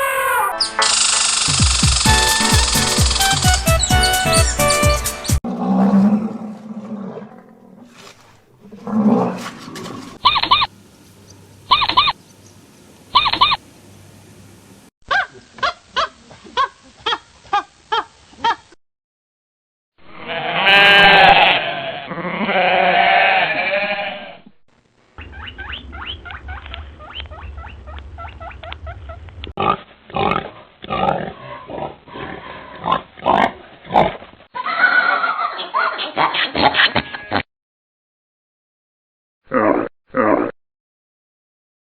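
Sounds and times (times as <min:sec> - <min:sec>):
farm animal calls: 0:10.2 - 0:10.8, 0:11.7 - 0:12.2, 0:13.1 - 0:13.6, 0:25.2 - 0:29.4.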